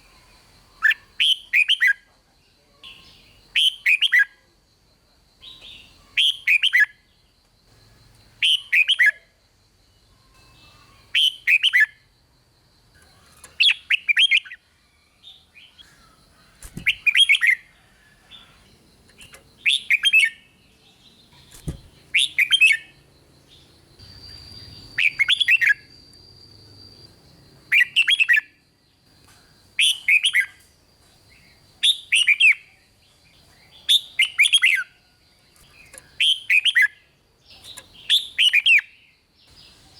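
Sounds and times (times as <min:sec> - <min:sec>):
faint steady high tone: 0:00.0 - 0:38.1
bird singing: 0:00.0 - 0:39.9.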